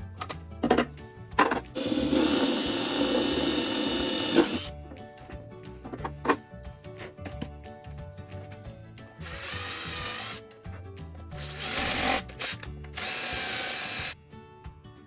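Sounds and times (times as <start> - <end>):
background music: 0.0 - 15.0
power drill running: 1.8 - 4.7, 9.2 - 10.4, 11.4 - 14.2.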